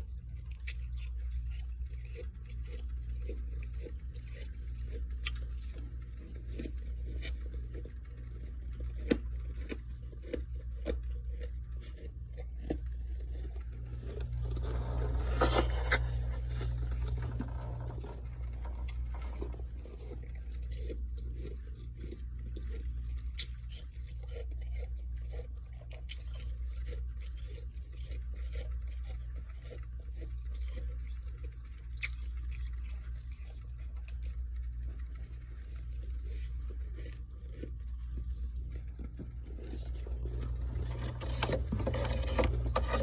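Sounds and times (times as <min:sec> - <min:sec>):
steady low hum: 0:00.0 - 0:43.0
ice frost being scraped: 0:14.1 - 0:19.6, 0:39.8 - 0:43.0.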